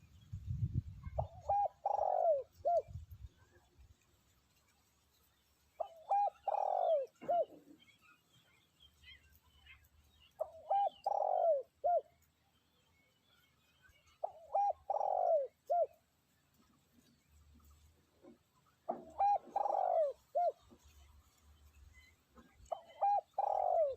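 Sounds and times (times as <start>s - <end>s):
dove cooing: 1.1s - 3.0s, 5.8s - 7.8s, 10.4s - 12.2s, 14.2s - 16.0s, 18.9s - 20.8s, 22.6s - 23.9s.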